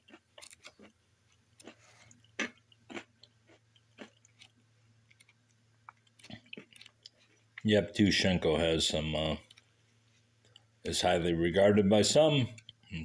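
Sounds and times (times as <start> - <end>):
crackers being chewed: 0.0 - 7.7, 9.4 - 10.8
faint low hum: 0.0 - 13.0.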